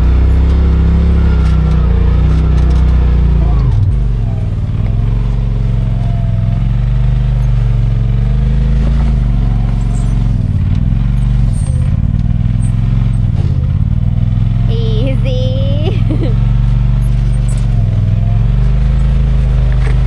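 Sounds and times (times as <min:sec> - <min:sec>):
utility vehicle engine revving: 0:00.0 - 0:20.0.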